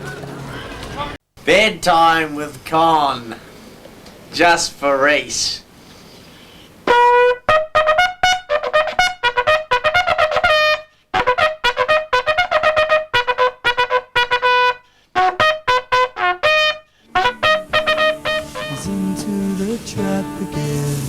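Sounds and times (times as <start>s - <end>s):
trumpet playing fast runs: 6.8s - 21.0s.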